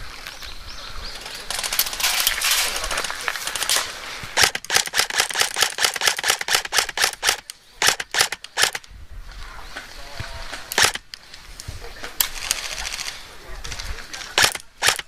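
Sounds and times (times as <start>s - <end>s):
clatter of airsoft fire: 1.5s - 8.8s, 10.8s - 11.0s, 14.3s - 15.0s
airsoft rifle single shots: 14.4s - 15.0s.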